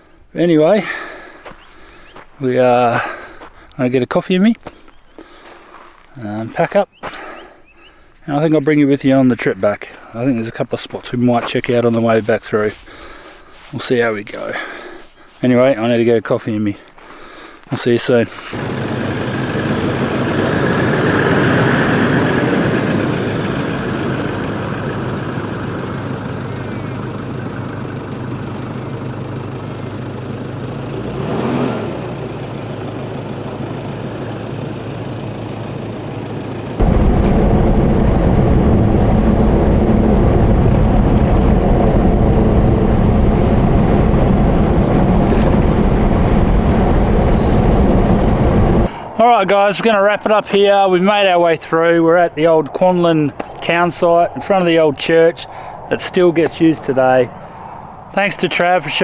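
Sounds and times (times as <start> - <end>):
vehicle engine and road noise: 18.4 - 49.2, 51.2 - 59.0
deep rumble: 36.8 - 48.9.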